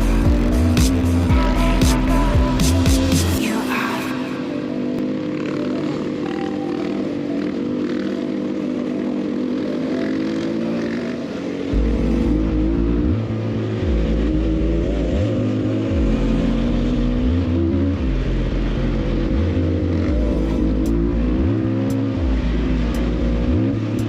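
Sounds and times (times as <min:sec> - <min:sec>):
motorcycle engine revving: 0:00.0 - 0:24.0
heavy low rumble: 0:11.7 - 0:24.0.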